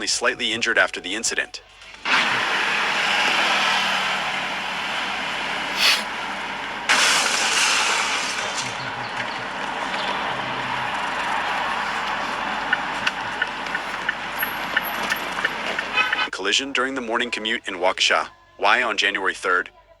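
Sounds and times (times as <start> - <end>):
street traffic noise: 0.0 - 18.3
loud rush of passing vehicle: 1.9 - 16.3.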